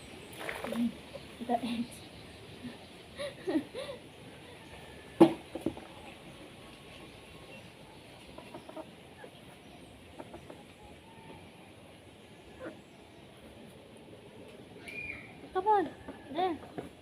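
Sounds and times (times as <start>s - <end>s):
chicken clucking: 5.6s - 11.5s.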